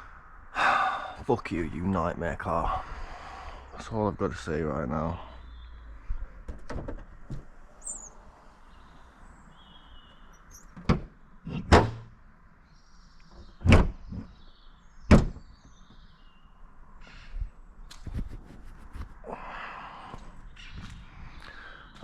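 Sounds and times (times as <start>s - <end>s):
faint bird chirps: 5.1s - 6.3s, 7.8s - 10.8s
sharp knocks and clunks: 6.5s - 7.5s, 10.7s - 12.2s, 13.3s - 14.4s, 15.1s - 16.0s.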